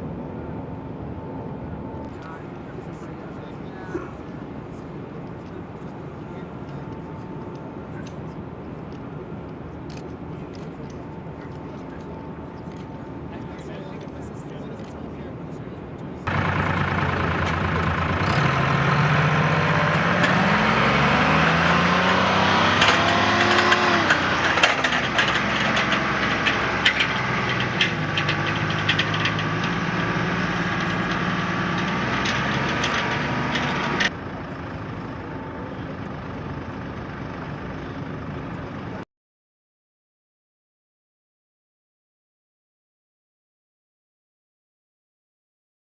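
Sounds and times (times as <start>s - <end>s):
engine running: 16.0s - 39.0s.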